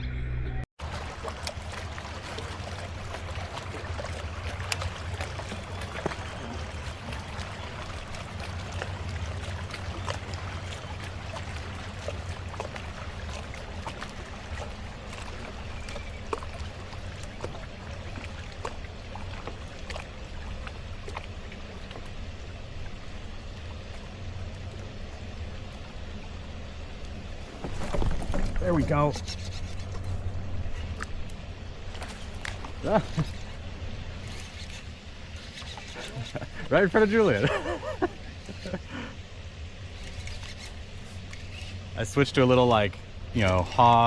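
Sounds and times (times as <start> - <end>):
water drips and ticks: 0.8 - 25.9, 27.9 - 33.6, 34.2 - 39.0, 40.0 - 44.0
water splashing around kayak: 0.8 - 44.0
steady low rumble: 16.7 - 35.4.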